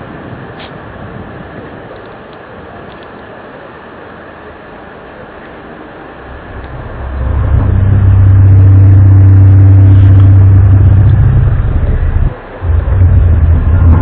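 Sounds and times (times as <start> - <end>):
low droning rumble with hum: 4.6 - 14.0.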